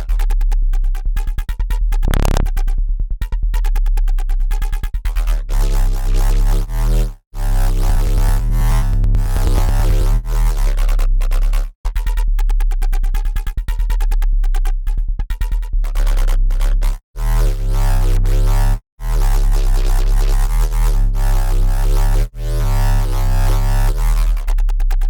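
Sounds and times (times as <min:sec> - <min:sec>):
heavy sub-bass: 0:00.0 - 0:25.0
dirty synth bass riff: 0:02.0 - 0:02.6, 0:05.1 - 0:11.7, 0:15.6 - 0:24.6.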